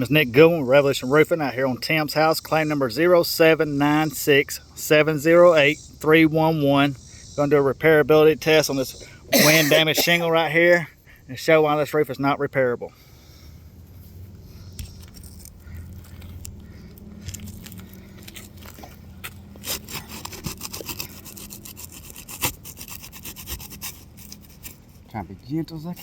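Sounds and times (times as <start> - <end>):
roof shingle scraping and crackling: 14.8 - 25.2.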